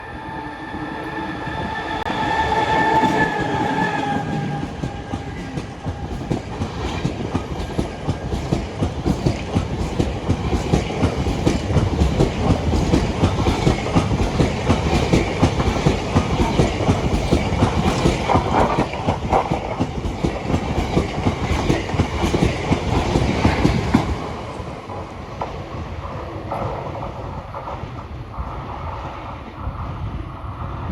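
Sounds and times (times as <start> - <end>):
train horn steady tone: 0.0 - 6.2
train wheels clattering over rail joints: 4.2 - 28.1.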